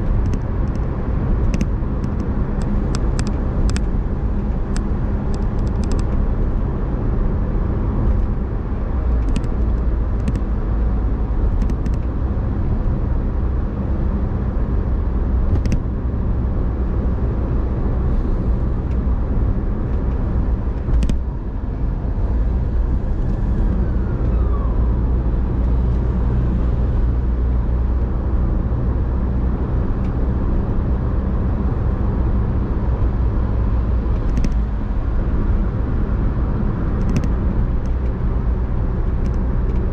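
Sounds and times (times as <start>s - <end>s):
car engine drone: 0.0s - 39.9s
road rumble: 0.0s - 39.9s
sharp clicks: 0.2s - 3.9s, 9.2s - 10.5s, 11.6s - 12.1s, 15.5s - 15.8s, 20.8s - 21.2s, 34.2s - 34.6s, 37.0s - 38.1s.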